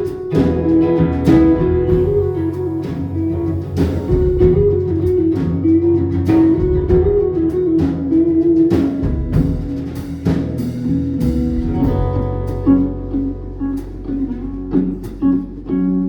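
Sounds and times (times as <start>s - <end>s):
drum and cymbal hits: 0.0s - 12.7s
guitar picking a melody: 0.0s - 16.0s
sustained low accompaniment: 0.0s - 16.0s.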